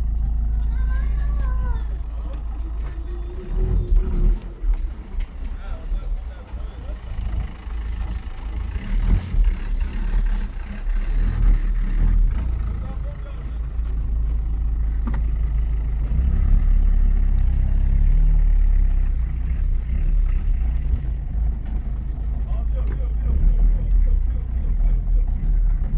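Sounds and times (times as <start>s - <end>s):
vehicle engine rumbling: 0.0s - 25.9s.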